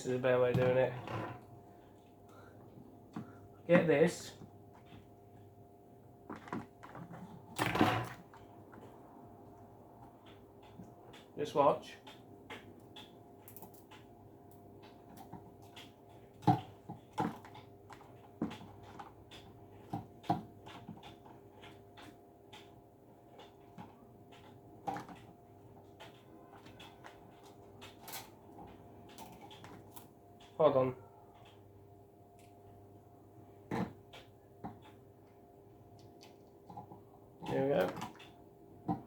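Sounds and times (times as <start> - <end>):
plastic parts clicking and knocking: 0.3 - 1.9, 6.2 - 9.0, 12.0 - 31.7, 33.6 - 39.0.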